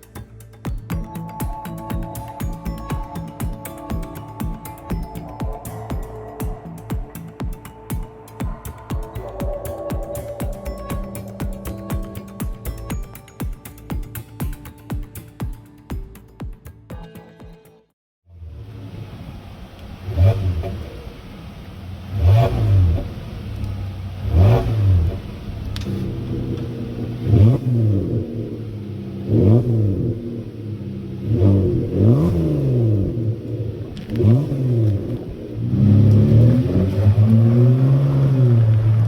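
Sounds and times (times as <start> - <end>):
minivan engine revving: 18.3 - 39.0.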